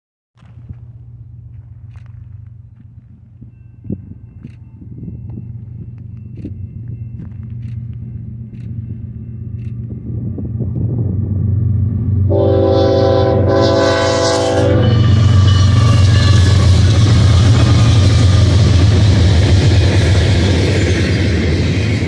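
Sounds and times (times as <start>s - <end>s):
diesel locomotive engine rumble: 0.4s - 22.0s
rushing noise of passing locomotives: 0.4s - 22.0s
locomotive horn: 12.3s - 18.1s.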